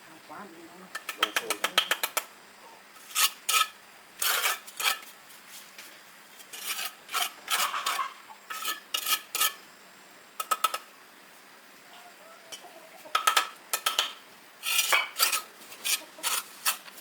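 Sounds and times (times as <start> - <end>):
trowel scraping mortar on bricks: 3.0 - 5.2, 6.4 - 9.6, 13.8 - 17.0.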